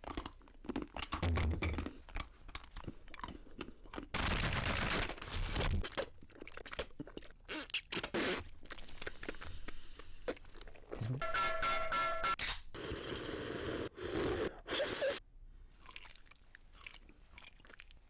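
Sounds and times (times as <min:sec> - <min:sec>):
crunchy biting and chewing: 0:00.0 - 0:04.2.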